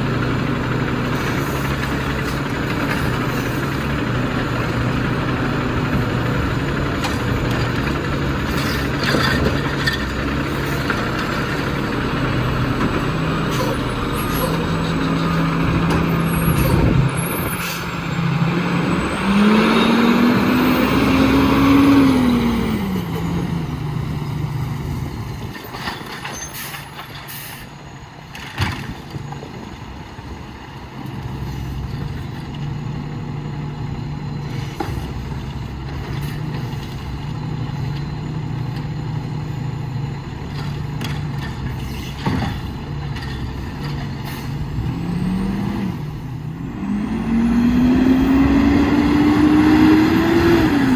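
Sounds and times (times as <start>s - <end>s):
diesel truck engine idling and revving: 0.0s - 50.9s
air brake clicks and hisses: 25.7s - 27.8s, 41.7s - 42.6s.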